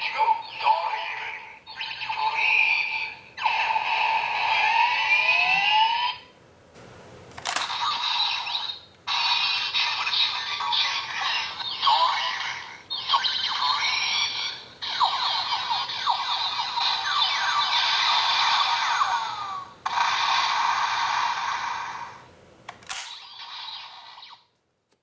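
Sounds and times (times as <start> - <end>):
toy electronic siren-like tones: 1.7 - 6.3, 13.0 - 22.2, 23.2 - 24.5.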